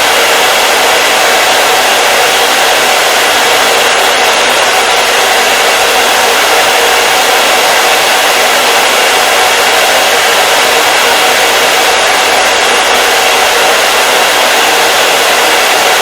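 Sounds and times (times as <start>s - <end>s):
hair dryer blowing air: 0.0s - 16.0s.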